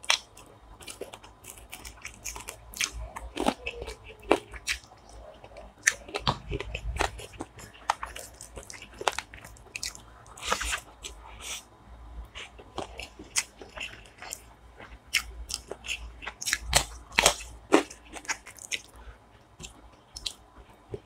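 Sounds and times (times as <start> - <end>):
chewing with sharp crunches: 0.0 - 11.7, 12.3 - 21.0.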